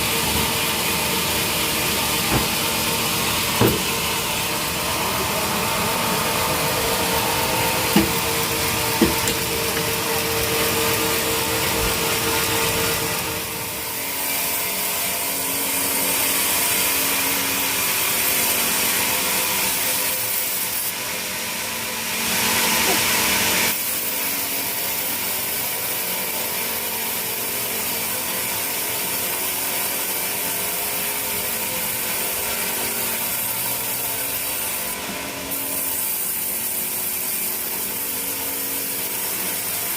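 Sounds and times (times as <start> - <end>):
saw cutting timber: 0.0 - 39.9
sharp knocks: 2.2 - 2.8, 3.5 - 4.0, 7.9 - 8.3, 9.0 - 9.9.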